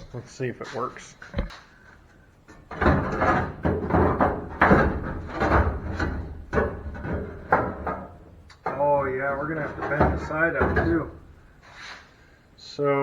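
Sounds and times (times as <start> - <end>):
sheet metal rattling and knocking: 2.5 - 11.5.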